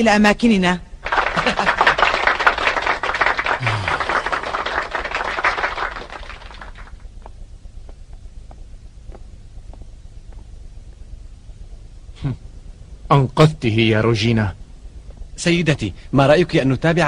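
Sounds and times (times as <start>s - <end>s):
crowd applauding: 1.0s - 7.1s.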